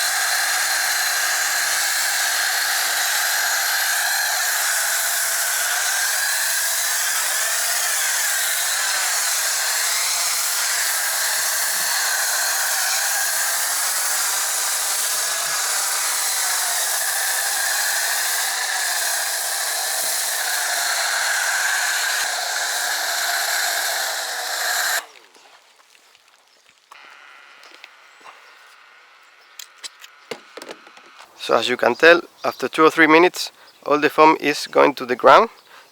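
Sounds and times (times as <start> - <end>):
pressure washer spraying: 0.0 - 25.1.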